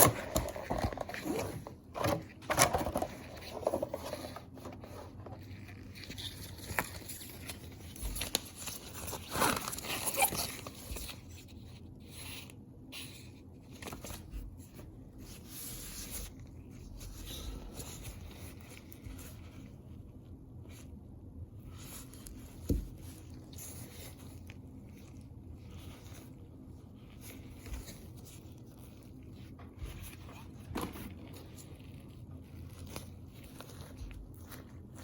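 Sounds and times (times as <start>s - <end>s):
packaging scraping: 0.0s - 11.3s
packaging rustling: 0.0s - 11.9s.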